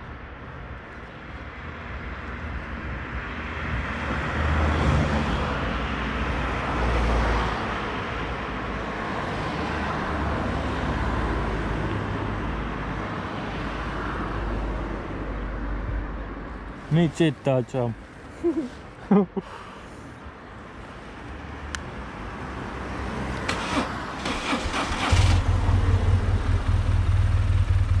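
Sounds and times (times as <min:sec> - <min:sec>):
wind and road noise: 0:00.0 - 0:28.0
motorcycle engine rumble: 0:23.5 - 0:28.0.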